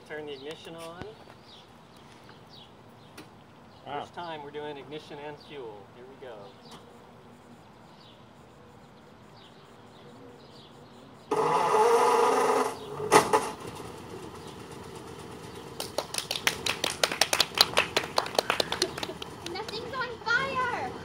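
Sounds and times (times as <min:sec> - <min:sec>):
engine sharp cracks: 0:11.3 - 0:19.9
car engine running: 0:11.3 - 0:21.0
engine pop: 0:12.4 - 0:17.2.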